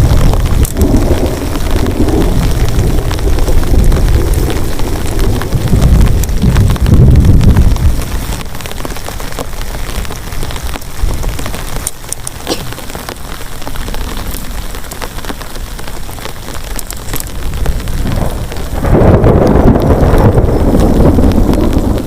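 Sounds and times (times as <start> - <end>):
loud low rumble: 0.0 - 8.1
heavy rain falling: 0.0 - 22.0.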